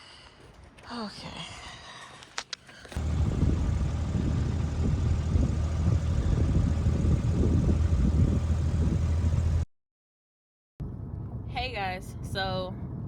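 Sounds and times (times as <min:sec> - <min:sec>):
car engine and road noise: 0:02.9 - 0:09.7.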